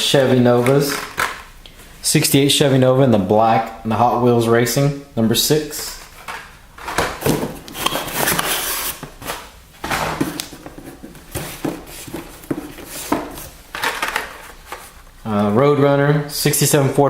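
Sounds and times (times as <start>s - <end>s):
plastic and cardboard rustling: 0.0s - 1.9s, 5.8s - 15.6s
blister packs scraping: 5.9s - 15.1s.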